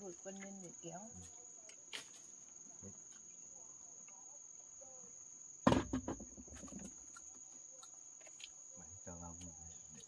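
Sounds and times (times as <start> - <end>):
forest insects chirring: 0.0 - 10.0
small knocks: 5.7 - 7.0.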